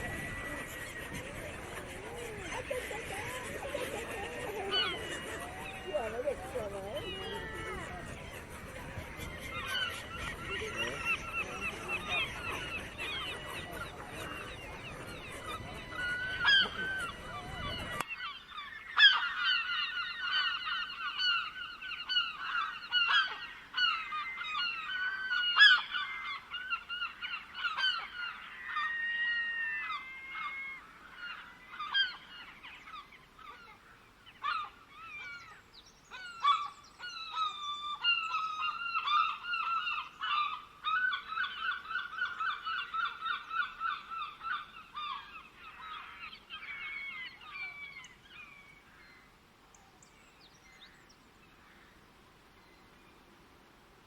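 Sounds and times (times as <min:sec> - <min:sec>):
birds calling: 0:00.0 - 0:52.0.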